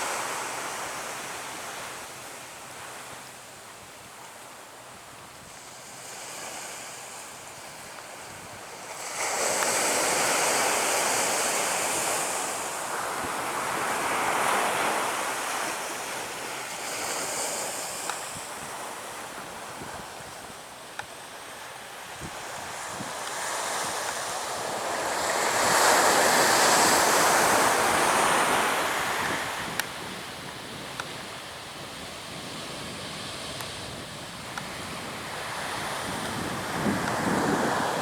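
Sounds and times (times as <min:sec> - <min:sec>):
wind buffeting microphone: 0:29.0 - 0:38.0.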